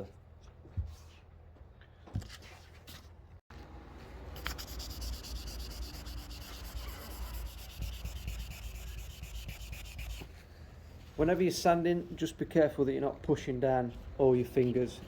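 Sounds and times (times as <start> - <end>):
sandpaper rubbing on car paint: 4.4 - 10.3.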